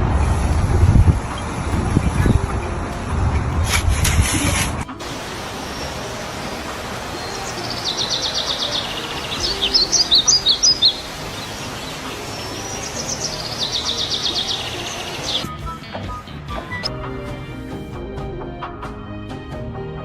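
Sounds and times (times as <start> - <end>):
steady background hiss: 0.0 - 15.5
bird chirping and trilling: 5.2 - 15.5.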